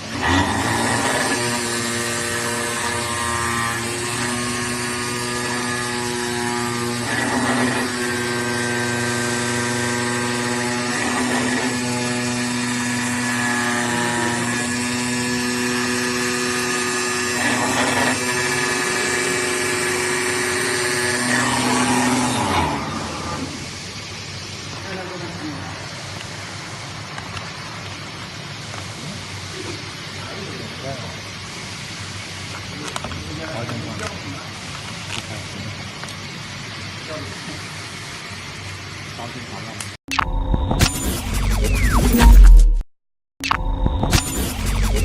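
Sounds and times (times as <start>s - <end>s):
router spindle whining: 0.0s - 23.8s.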